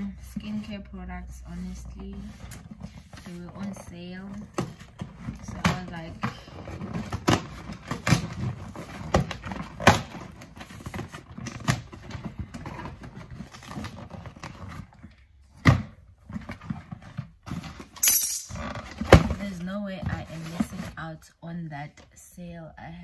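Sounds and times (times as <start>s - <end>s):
packaging rustling: 6.2s - 15.3s.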